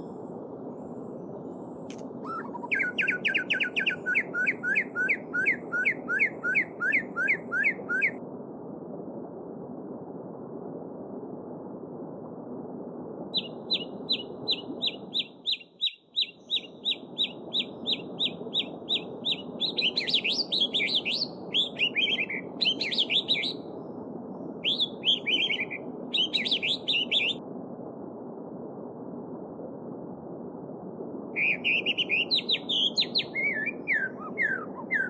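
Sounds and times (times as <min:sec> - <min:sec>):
small songbird singing: 0:02.2 - 0:08.2, 0:13.4 - 0:23.7, 0:24.6 - 0:27.4, 0:31.4 - 0:35.0.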